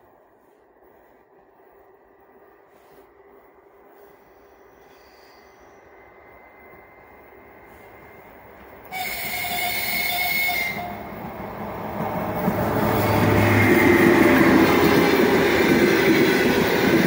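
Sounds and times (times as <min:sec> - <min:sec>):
locomotive wheels rumbling on rails: 0:00.0 - 0:17.0
train horn blast: 0:08.9 - 0:11.0.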